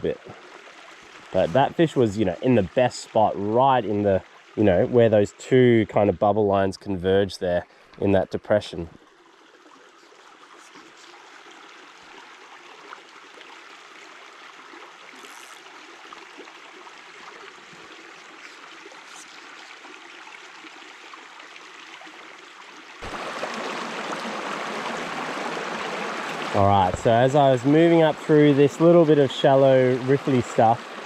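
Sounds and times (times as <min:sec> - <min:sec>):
stream rushing over rocks: 0:23.0 - 0:31.0.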